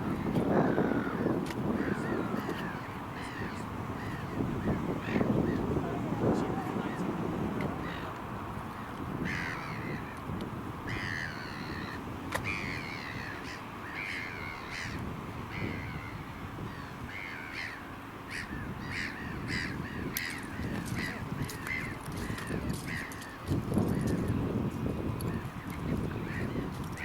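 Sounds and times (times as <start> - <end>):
bird giving harsh calls: 10.9 - 23.4.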